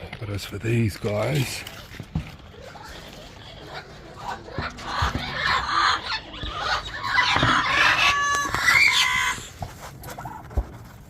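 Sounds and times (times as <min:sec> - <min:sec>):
parrot squawking: 0:02.8 - 0:09.5.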